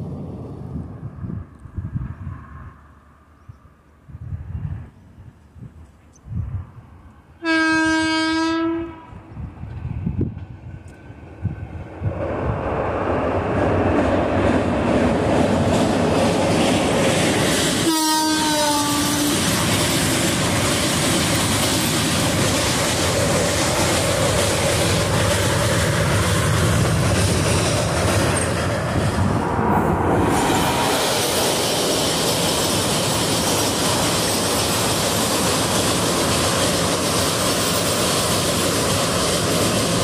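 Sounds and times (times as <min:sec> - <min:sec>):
train rumbling and rattling on rails: 0:00.0 - 0:40.0
train horn: 0:07.4 - 0:09.3, 0:17.8 - 0:19.5.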